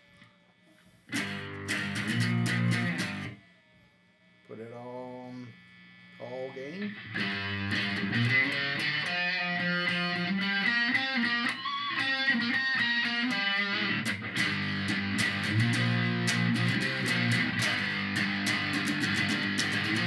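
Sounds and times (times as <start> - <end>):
distorted electric guitar: 1.1 - 3.4, 6.4 - 20.0.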